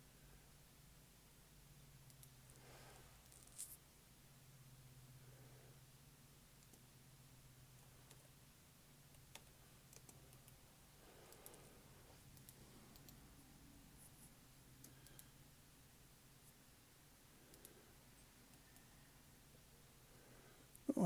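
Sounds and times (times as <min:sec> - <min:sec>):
computer mouse and keyboard clicks: 0:09.1 - 0:10.6, 0:11.3 - 0:11.7, 0:12.3 - 0:13.2.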